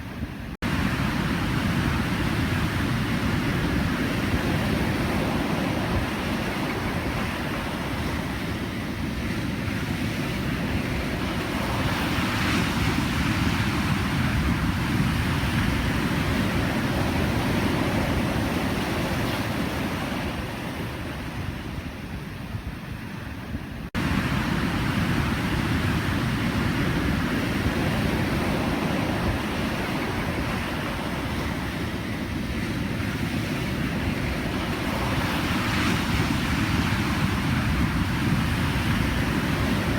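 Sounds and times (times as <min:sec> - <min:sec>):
waves breaking: 0:23.9 - 0:39.9.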